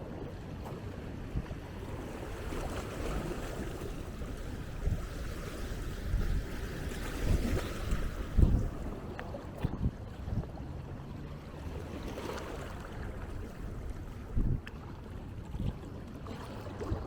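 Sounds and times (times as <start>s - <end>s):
small waves washing on sand: 0.6s - 10.6s
wind gusting on microphone: 1.3s - 10.6s, 13.2s - 14.7s.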